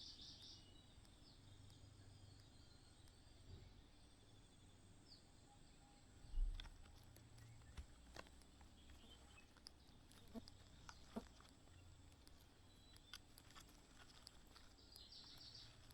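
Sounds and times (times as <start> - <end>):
bird chirp: 0.0 - 15.9
faint clicks: 6.4 - 15.9.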